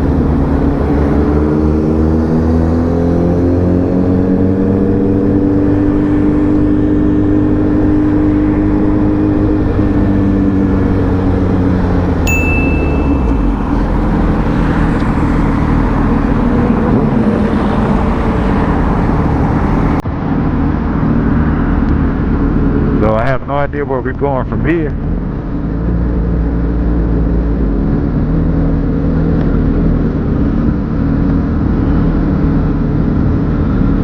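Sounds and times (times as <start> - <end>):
short high electronic beep: 12.3 - 14.0.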